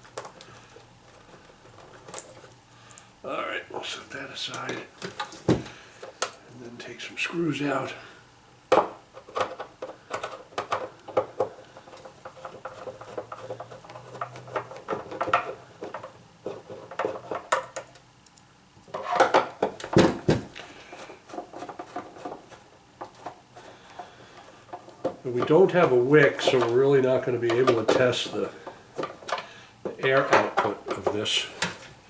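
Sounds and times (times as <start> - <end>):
plastic parts clicking and clattering: 4.5 - 6.4, 8.7 - 31.9.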